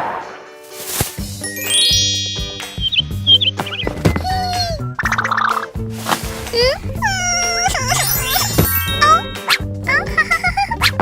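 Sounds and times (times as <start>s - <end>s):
bright chiming sound effect: 1.4s - 3.5s, 7.7s - 9.6s.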